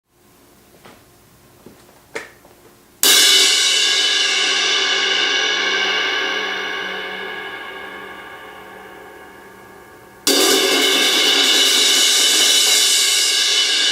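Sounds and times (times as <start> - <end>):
crash cymbal struck and ringing: 3.0 - 13.9.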